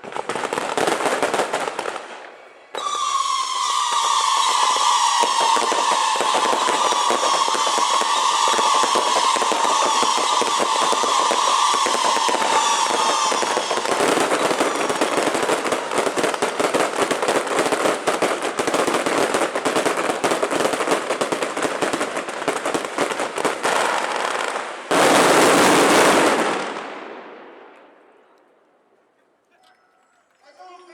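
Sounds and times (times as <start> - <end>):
firecrackers crackling: 0.0 - 28.1.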